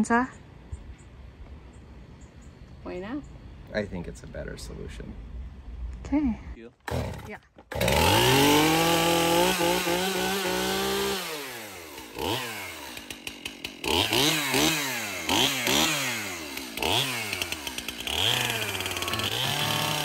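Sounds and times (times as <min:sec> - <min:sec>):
chainsaw engine revving: 0:06.8 - 0:20.0.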